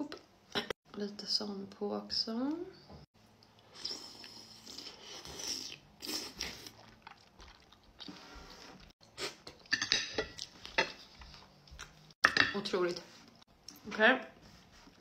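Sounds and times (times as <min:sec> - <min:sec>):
soft wet chewing: 0:03.4 - 0:09.7, 0:10.3 - 0:12.2.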